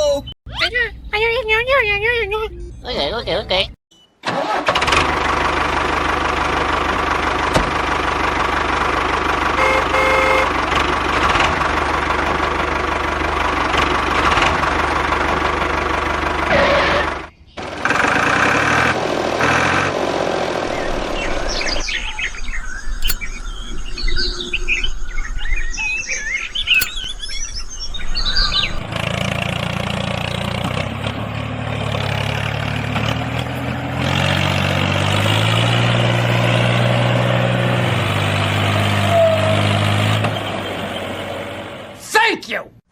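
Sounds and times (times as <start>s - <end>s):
low engine hum: 4.8s - 42.0s
birds chirping: 20.6s - 28.9s.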